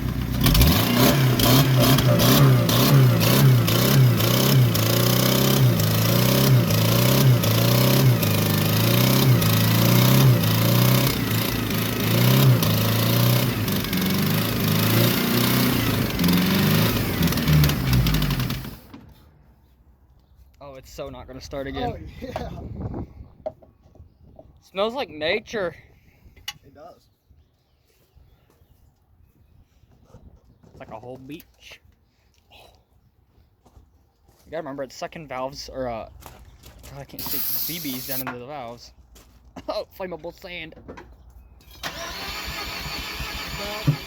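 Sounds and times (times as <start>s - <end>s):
engine revving up and down: 0.0s - 18.8s.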